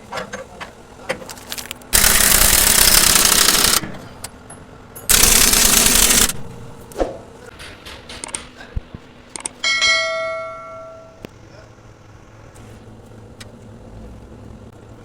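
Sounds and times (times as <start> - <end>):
pneumatic tool hammering: 1.9 - 4.3, 5.1 - 6.6.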